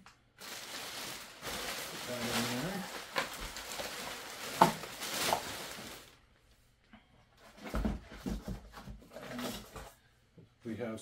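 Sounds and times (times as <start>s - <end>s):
bubble wrap rustling: 0.4s - 6.2s.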